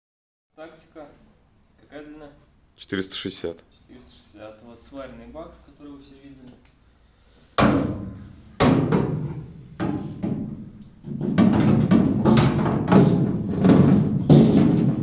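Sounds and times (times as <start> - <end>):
metal tank knocking against boat: 7.6 - 15.0.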